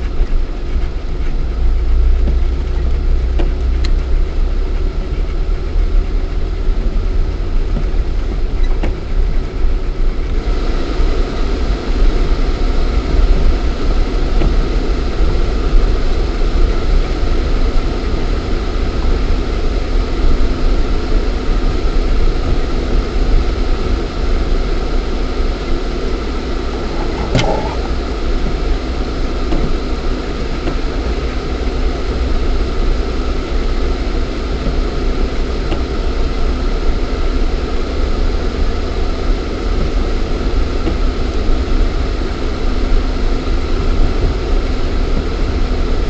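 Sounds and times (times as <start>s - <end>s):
car engine rumbling inside cabin: 0.0s - 46.0s
rough hissing noise: 26.2s - 28.3s.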